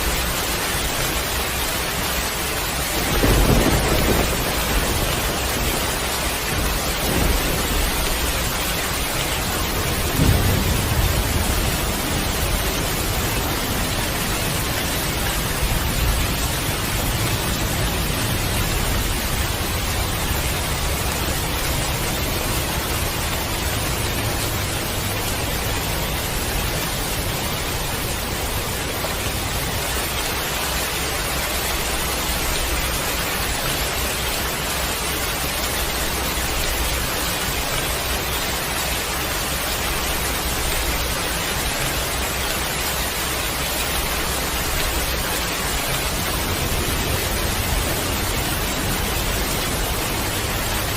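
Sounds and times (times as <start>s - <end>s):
heavy rain falling: 0.0s - 50.9s
low thunder roll: 2.8s - 29.6s.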